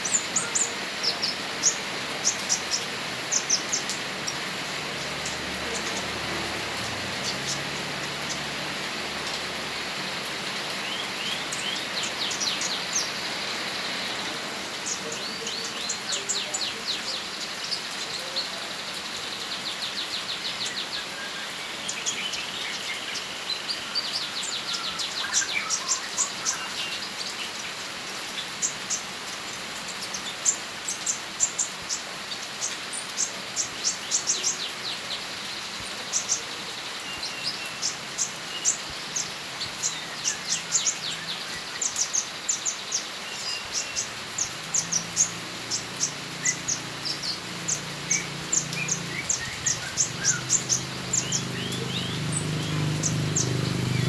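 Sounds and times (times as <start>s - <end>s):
small songbird singing: 0.0s - 54.0s.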